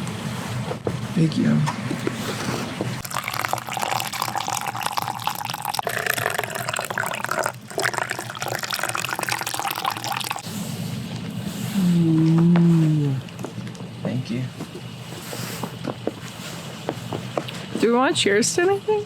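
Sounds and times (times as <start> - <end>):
coffee pouring into cup: 3.0 - 10.4.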